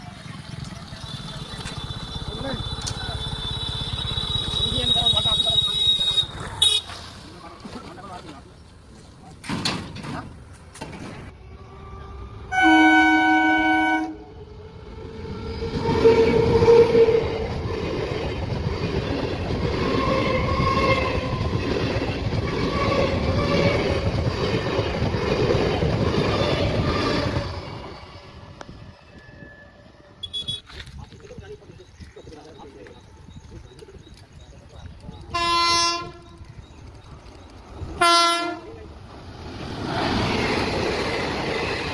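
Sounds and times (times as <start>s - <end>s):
train wagons rumbling on track: 0.0s - 41.9s
train horn blast: 1.2s - 6.9s, 11.4s - 14.4s, 15.8s - 17.6s, 35.3s - 36.4s, 38.0s - 38.8s.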